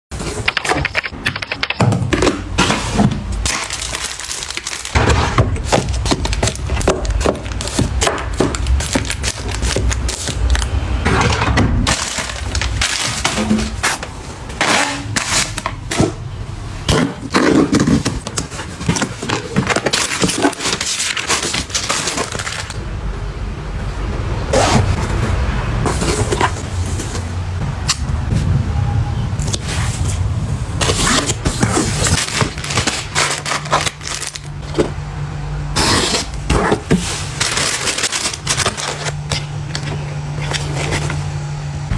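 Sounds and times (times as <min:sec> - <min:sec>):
objects clattering being handled: 0:00.1 - 0:16.2, 0:16.9 - 0:22.8, 0:36.2 - 0:41.4.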